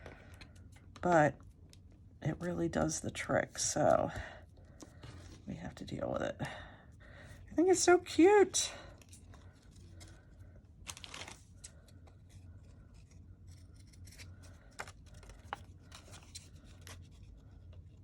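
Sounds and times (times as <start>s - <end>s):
paper rustling: 9.0s - 17.9s.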